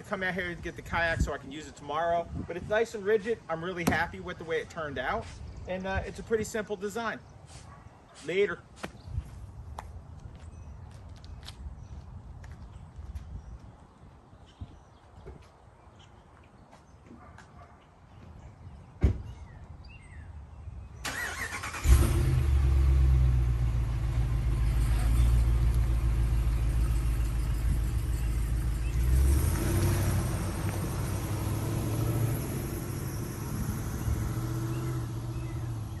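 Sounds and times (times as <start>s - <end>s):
thump: 19.0s - 19.3s
truck engine starting and running: 21.0s - 36.0s.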